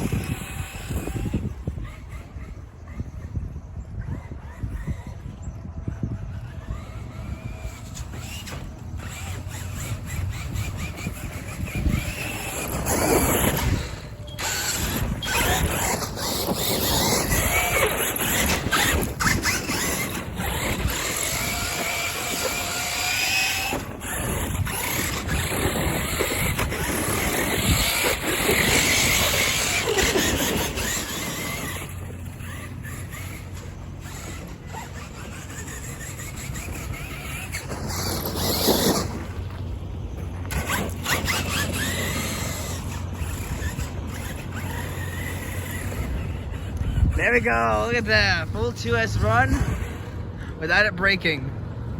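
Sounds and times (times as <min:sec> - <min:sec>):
electric motor whining: 0:00.0 - 0:50.4
tyre and drivetrain noise: 0:00.0 - 0:51.9.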